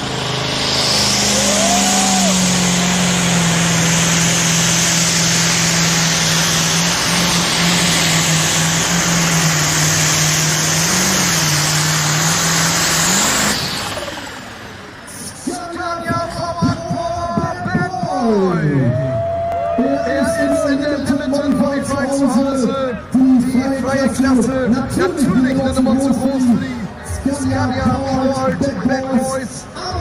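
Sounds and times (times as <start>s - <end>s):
tractor engine high-revving howl: 0.0s - 19.2s.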